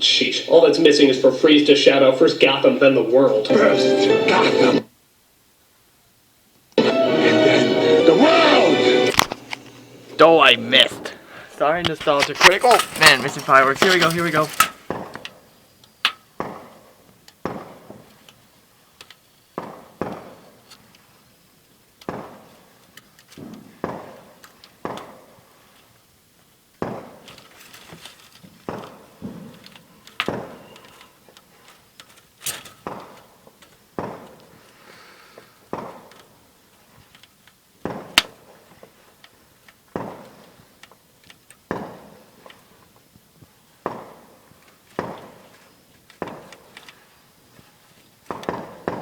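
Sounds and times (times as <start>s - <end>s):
fireworks bangs with echo: 17.4s - 18.0s, 19.6s - 20.4s, 23.4s - 24.2s, 34.0s - 34.4s, 40.0s - 40.4s, 43.8s - 44.3s, 45.0s - 45.4s, 48.3s - 49.0s.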